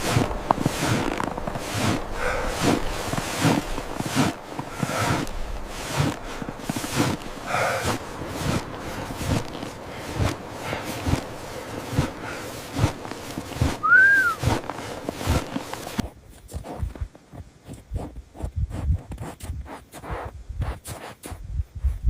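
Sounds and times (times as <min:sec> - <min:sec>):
background hiss: 0:00.0 - 0:22.0
footsteps crunching in snow: 0:00.0 - 0:22.0
whistle-like tone: 0:13.8 - 0:14.4.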